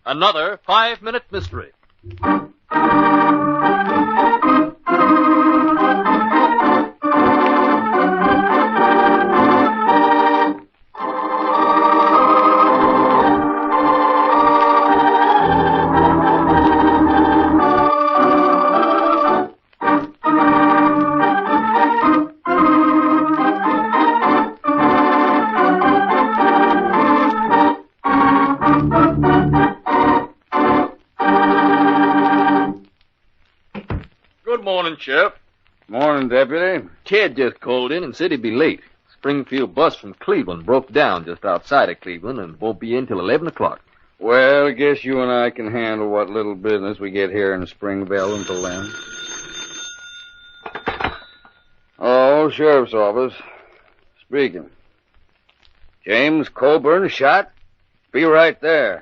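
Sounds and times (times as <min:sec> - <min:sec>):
organ playing: 0:02.1 - 0:32.9, 0:48.2 - 0:49.4.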